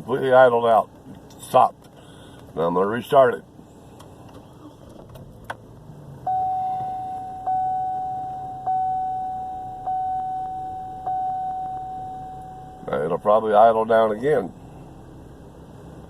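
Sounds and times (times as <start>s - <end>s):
dashboard warning chime dinging: 6.2s - 13.3s.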